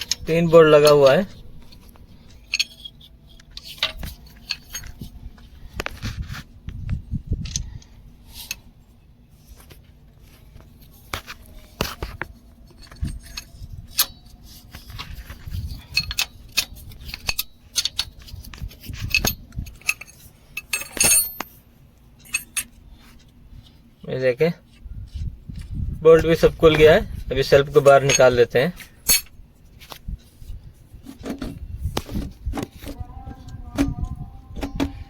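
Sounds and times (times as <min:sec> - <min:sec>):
metal tools clinking: 0:00.0 - 0:05.2, 0:11.2 - 0:21.6, 0:22.2 - 0:23.3, 0:26.2 - 0:32.8.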